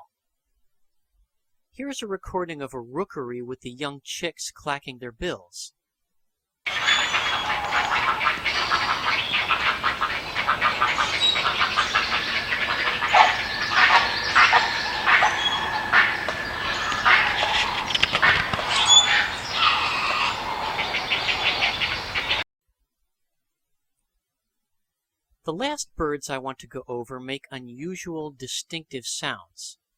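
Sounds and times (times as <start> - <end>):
herons clacking bills: 6.7 - 21.0
harsh squawking calls: 6.7 - 22.4.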